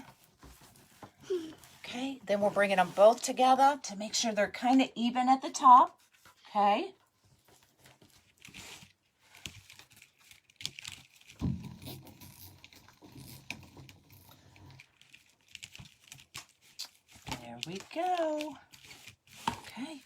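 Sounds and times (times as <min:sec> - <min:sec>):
mesh crinkling: 0:05.9 - 0:20.0.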